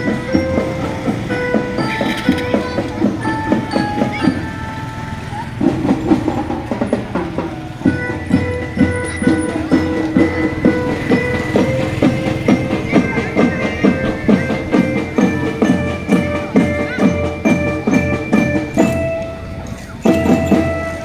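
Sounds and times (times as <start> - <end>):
held melody notes: 0.0 - 21.0
marching drums: 0.0 - 21.0.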